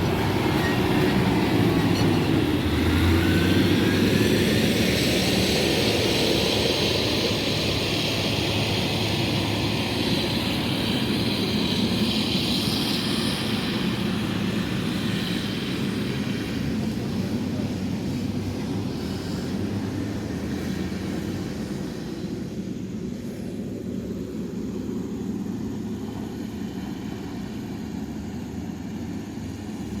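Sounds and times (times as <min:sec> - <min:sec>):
heavy machinery diesel engine: 0:00.0 - 0:30.0.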